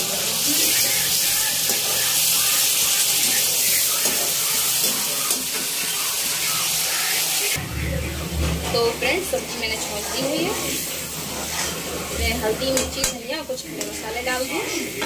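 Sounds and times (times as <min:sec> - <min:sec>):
food sizzling in hot oil: 0:00.0 - 0:07.6, 0:08.7 - 0:15.0
spatula stirring in pan: 0:00.0 - 0:07.6, 0:09.4 - 0:13.1.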